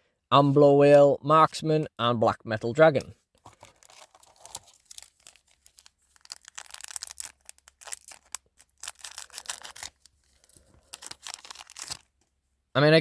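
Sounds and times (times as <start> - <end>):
foil wrapper crinkling and tearing: 3.4 - 12.2.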